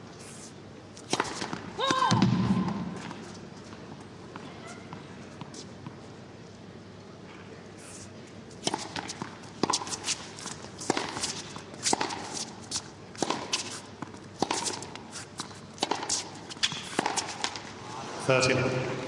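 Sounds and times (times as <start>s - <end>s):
racquets hitting tennis ball: 1.0s - 6.0s, 8.5s - 17.8s.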